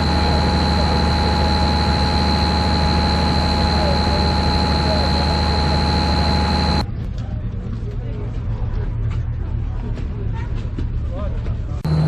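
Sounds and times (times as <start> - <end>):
heavy engine droning: 0.0 - 6.9, 11.8 - 12.0
constant high whine: 0.0 - 10.0, 11.7 - 12.0.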